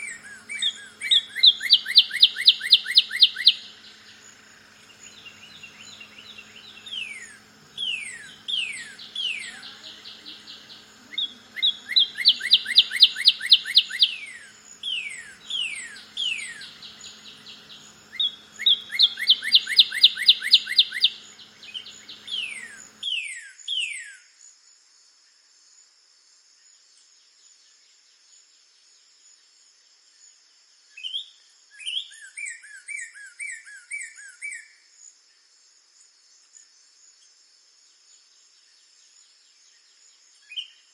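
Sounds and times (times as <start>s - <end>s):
high insect drone: 0.0s - 23.1s
cardinal singing: 5.1s - 17.9s.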